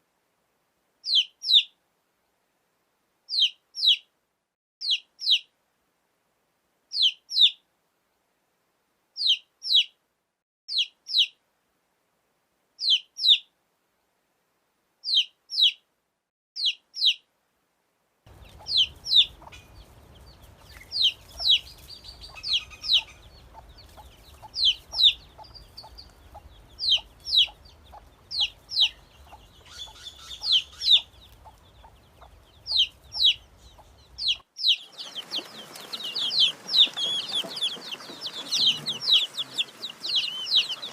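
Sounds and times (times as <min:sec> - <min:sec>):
faint background noise: 0:00.0 - 0:40.9
baby chicks peeping: 0:01.1 - 0:01.7, 0:03.3 - 0:04.0, 0:04.8 - 0:05.5, 0:06.9 - 0:07.6, 0:09.2 - 0:09.9, 0:10.7 - 0:11.4, 0:12.8 - 0:13.4, 0:15.0 - 0:15.8, 0:16.6 - 0:17.2, 0:18.3 - 0:40.9.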